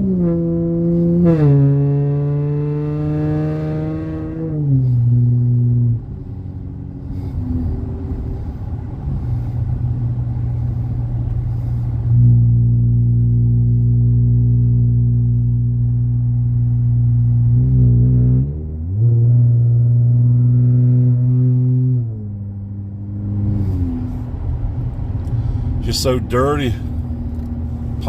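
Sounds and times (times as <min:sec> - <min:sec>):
car exhaust drone: 0:00.0 - 0:28.0.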